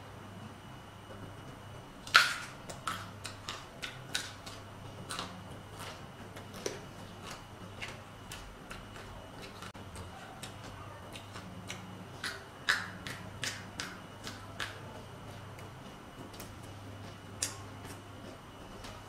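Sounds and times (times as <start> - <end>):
crunchy chewing of vegetables: 2.0 - 19.0.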